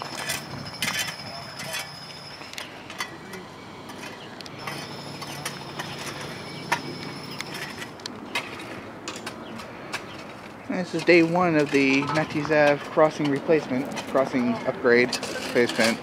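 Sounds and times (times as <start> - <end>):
low engine-like hum: 0.0 - 11.6.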